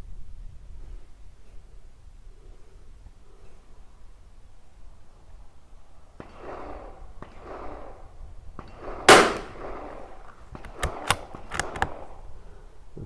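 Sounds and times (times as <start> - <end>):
rifle shot crack: 6.2 - 12.3
quick sharp clicks: 8.8 - 12.0.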